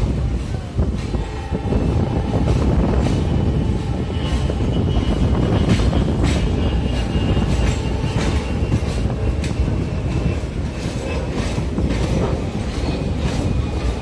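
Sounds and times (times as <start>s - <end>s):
heavy train rumble: 0.0s - 14.0s
wheels clacking over rail joints: 0.1s - 14.0s
high wheel squeal: 1.2s - 14.0s.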